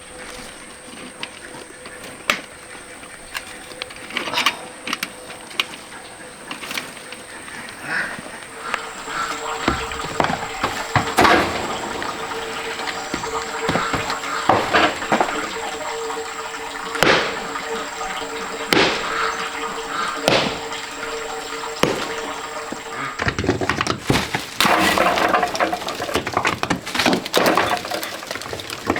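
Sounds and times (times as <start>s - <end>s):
stream water running: 0.0s - 28.9s
sharp hits: 8.8s - 23.0s.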